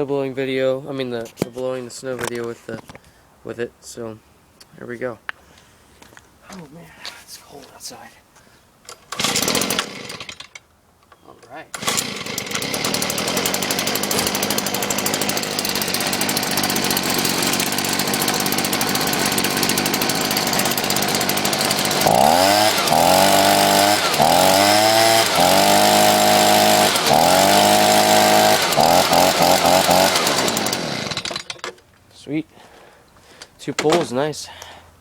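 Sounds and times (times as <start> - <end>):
leaf blower engine revving: 9.1 - 10.4, 11.7 - 31.4.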